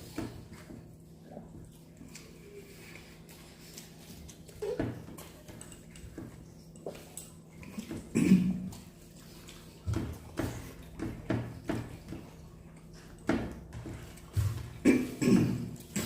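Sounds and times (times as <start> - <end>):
hands and dishes knocking: 9.9 - 12.3.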